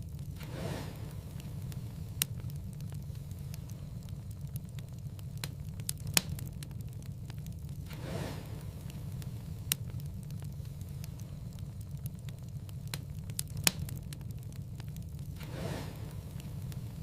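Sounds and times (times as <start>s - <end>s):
sharp fire pops: 0.0s - 17.0s
soft hiss: 0.0s - 17.0s
steady low rumble: 0.0s - 17.0s
wood fire crackling: 0.0s - 17.0s.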